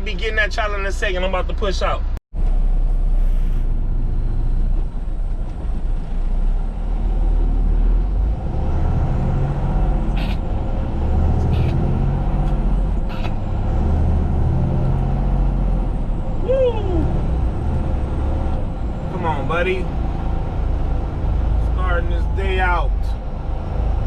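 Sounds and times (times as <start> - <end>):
diesel truck engine rumbling: 0.0 - 24.0
brief air hisses: 3.2 - 3.7.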